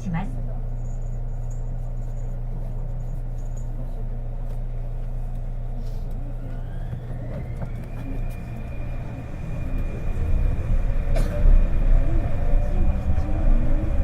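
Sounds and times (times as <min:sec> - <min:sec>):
train interior hum and rumble: 0:00.0 - 0:14.0.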